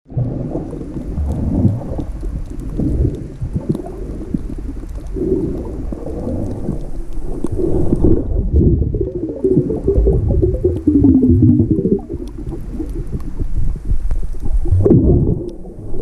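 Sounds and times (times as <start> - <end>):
faint crackling clicks: 0.1 - 16.0
muffled underwater rumble: 0.1 - 16.0.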